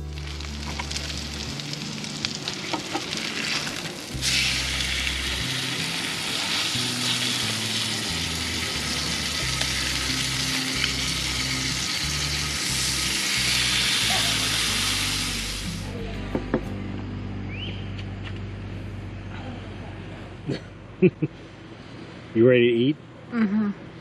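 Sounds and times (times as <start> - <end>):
food sizzling on grill: 0.0 - 16.0.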